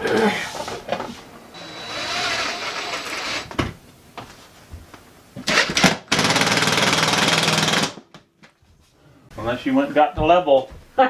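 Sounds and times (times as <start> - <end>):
power drill running: 1.5 - 3.6, 5.5 - 8.0.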